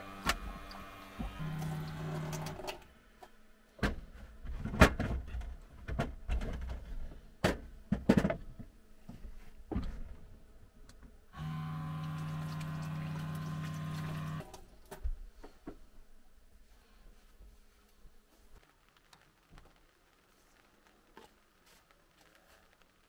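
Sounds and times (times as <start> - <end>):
small electric motor humming: 0.0 - 2.6, 11.4 - 14.5
knocks and clatter of handling: 3.8 - 10.2.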